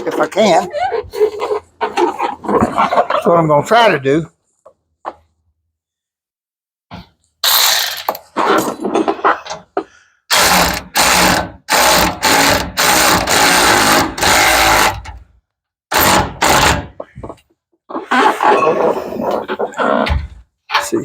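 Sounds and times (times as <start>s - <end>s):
hand tool tightening bolts: 10.3s - 15.2s, 15.9s - 17.1s.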